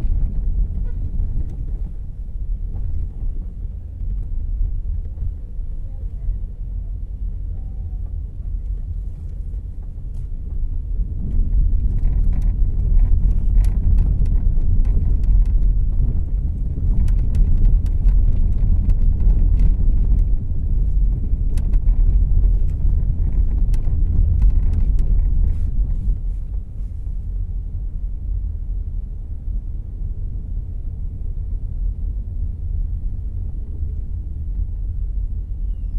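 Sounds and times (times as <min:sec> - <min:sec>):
road and engine rumble in car: 0:00.0 - 0:35.9
sharp clicks and rattles: 0:11.2 - 0:26.6.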